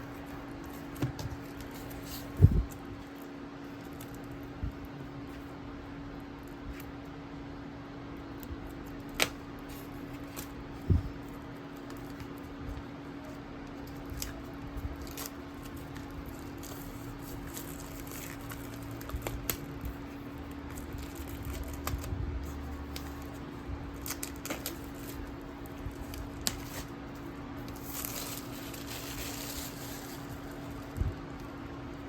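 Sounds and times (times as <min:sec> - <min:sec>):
steady low hum: 0:00.0 - 0:32.0
books and packaging tapping: 0:00.6 - 0:02.7
packaging rustle: 0:13.6 - 0:31.6.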